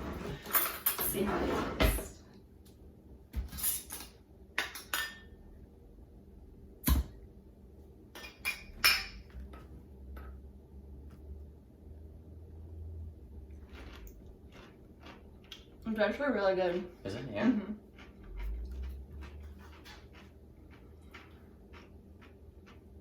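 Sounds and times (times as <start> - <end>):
cutlery and dishes clinking: 0.1 - 2.0, 3.5 - 5.4, 8.2 - 9.3.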